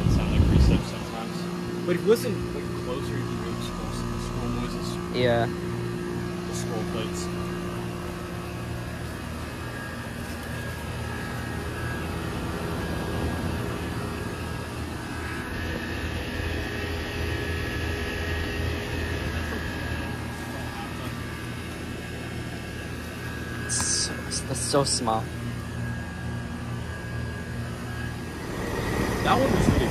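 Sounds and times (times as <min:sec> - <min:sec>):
low compressor hum: 0:00.0 - 0:29.9
fan whoosh: 0:27.0 - 0:29.9.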